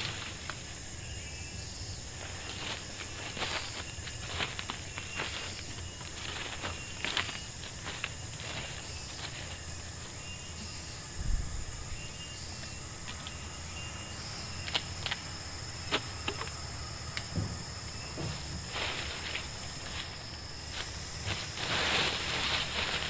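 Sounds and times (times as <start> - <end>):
high-pitched insect chorus: 0.0 - 23.0
low thump: 17.3 - 18.7.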